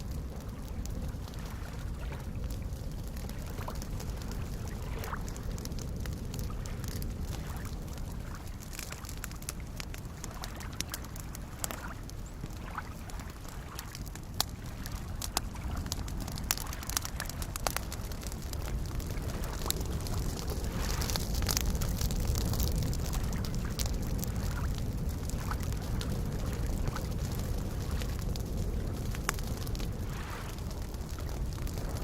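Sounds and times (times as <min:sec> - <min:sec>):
campfire crackling and popping: 0:00.0 - 0:32.0
small lake waves lapping: 0:00.0 - 0:32.0.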